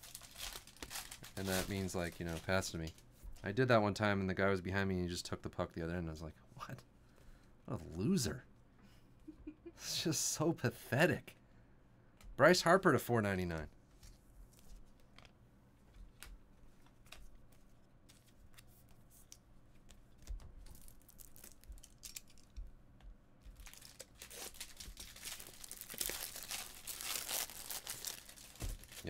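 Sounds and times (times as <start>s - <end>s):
card pack wrapper tearing: 0.0s - 2.7s, 20.7s - 22.5s, 23.6s - 29.0s.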